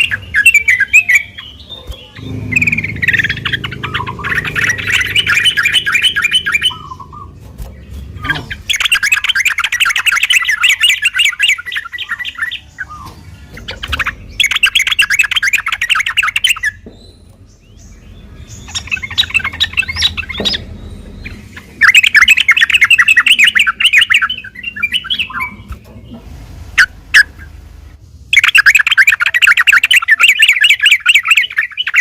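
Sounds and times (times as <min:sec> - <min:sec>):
bird chattering song: 0:00.0 - 0:26.2, 0:28.3 - 0:32.0.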